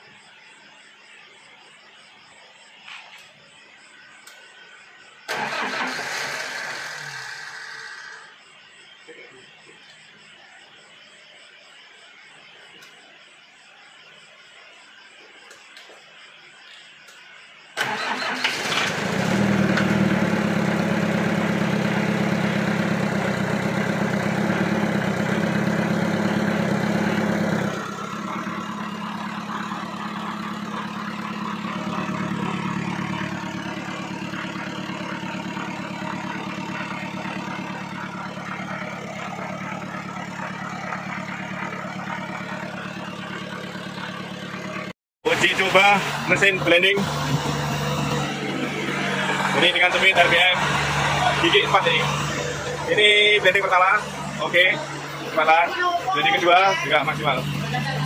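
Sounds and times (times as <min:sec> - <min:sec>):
engine starting and running: 0:05.2 - 0:08.4, 0:17.8 - 0:58.0.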